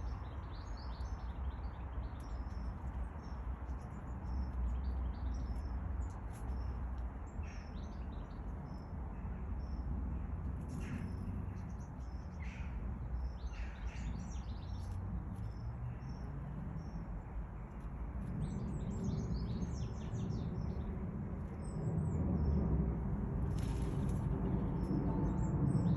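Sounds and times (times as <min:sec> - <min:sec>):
low outdoor rumble: 0:15.0 - 0:25.9.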